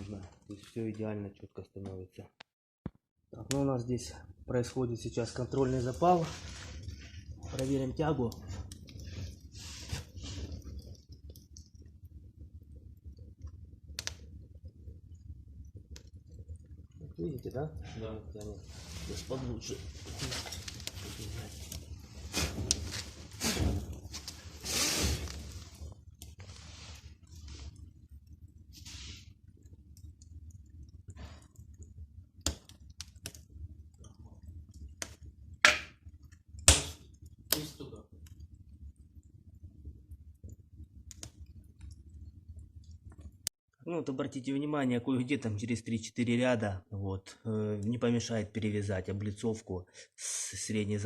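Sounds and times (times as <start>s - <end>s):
fire crackling: 0.0s - 1.9s, 3.3s - 43.5s
fire hissing: 3.8s - 43.4s
soft scrapes: 5.6s - 10.9s, 17.9s - 27.8s, 28.7s - 29.4s
sharp crack: 36.6s - 37.8s.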